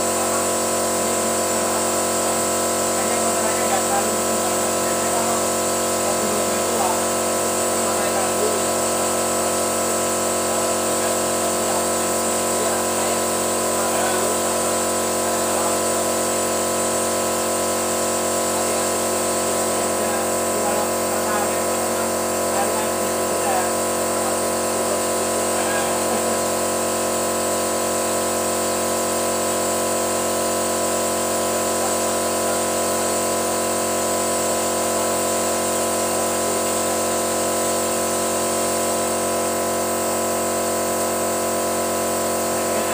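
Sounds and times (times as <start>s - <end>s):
motor humming: 0.0s - 42.9s.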